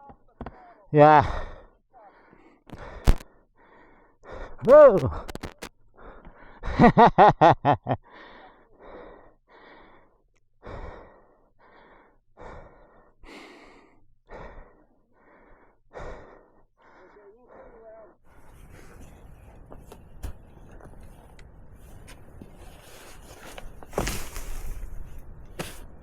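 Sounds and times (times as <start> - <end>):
man breathing hard: 1.2 - 4.7, 5.9 - 6.8, 8.0 - 19.0.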